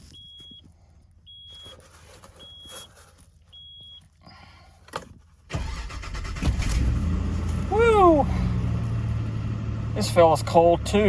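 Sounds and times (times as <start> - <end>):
car warning chime beeping: 2.4 - 2.9, 3.5 - 4.1
car engine starting and running: 5.0 - 11.0.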